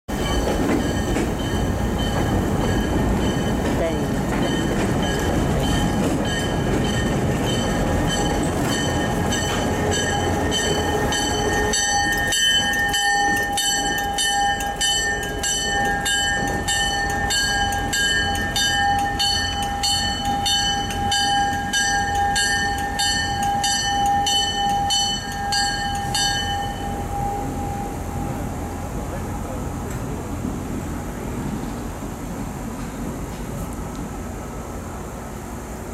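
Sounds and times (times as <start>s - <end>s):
boxcars rumbling on rails: 0.1s - 35.9s
diesel locomotive approaching: 0.1s - 35.9s
bell ringing: 4.5s - 28.0s.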